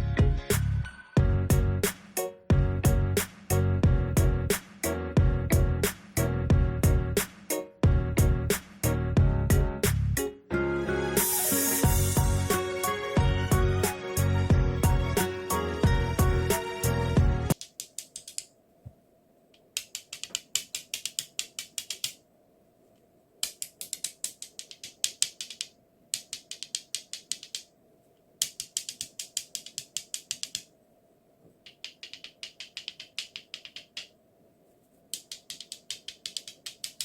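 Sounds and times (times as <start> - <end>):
ratchet-like clicking bursts: 19.8 - 22.2, 23.4 - 27.7, 28.4 - 30.7, 31.6 - 34.2, 35.1 - 37.0.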